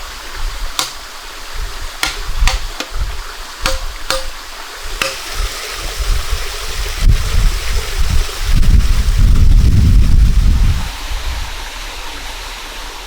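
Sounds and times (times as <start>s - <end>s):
flowing water: 0.0s - 13.0s
sharp ringing knocks: 0.8s - 1.0s, 2.0s - 3.0s, 3.6s - 4.4s, 5.0s - 5.3s.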